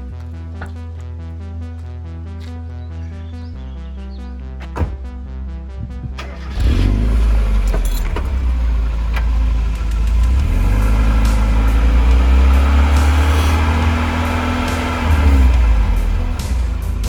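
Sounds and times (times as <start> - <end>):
electronic music: 0.0 - 8.9
car engine exhaust note: 5.3 - 17.0.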